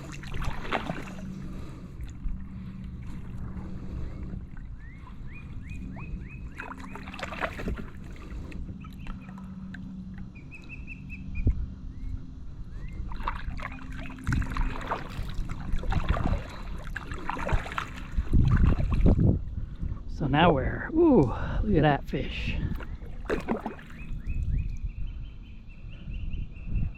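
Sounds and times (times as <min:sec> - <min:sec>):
paddle strokes splashing water: 0:00.0 - 0:09.8, 0:13.0 - 0:19.2, 0:22.6 - 0:24.4
bird chirping: 0:04.8 - 0:07.2, 0:10.3 - 0:13.1, 0:23.8 - 0:26.9.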